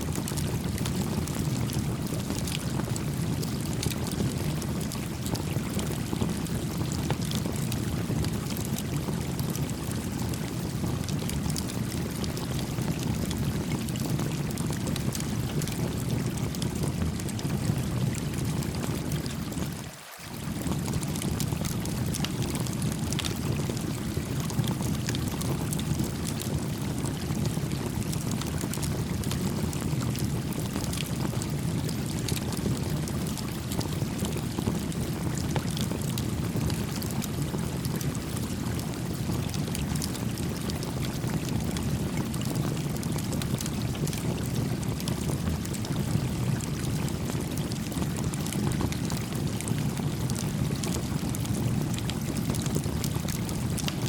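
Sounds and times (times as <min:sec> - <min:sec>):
campfire crackling: 0:51.8 - 0:54.0.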